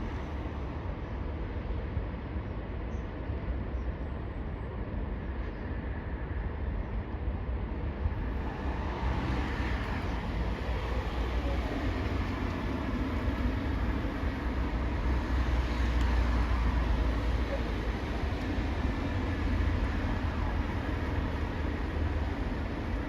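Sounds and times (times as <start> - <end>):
heavy engine rumble: 9.9 - 23.0.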